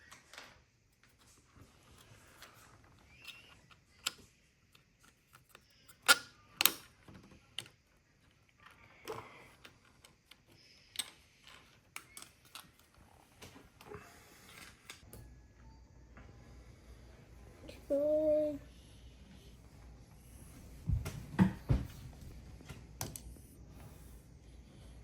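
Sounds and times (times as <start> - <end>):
plastic parts clicking and knocking: 2.0 - 13.6.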